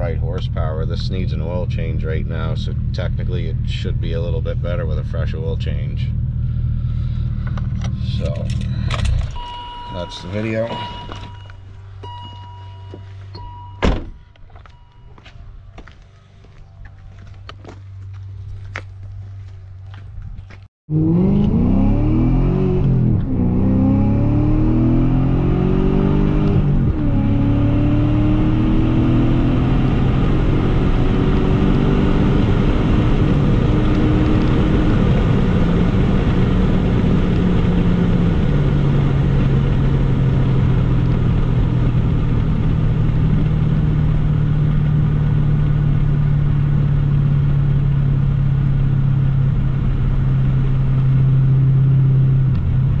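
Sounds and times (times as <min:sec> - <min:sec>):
car engine from inside cabin: 0:00.0 - 0:16.0, 0:20.9 - 0:53.0
road noise: 0:00.0 - 0:53.0.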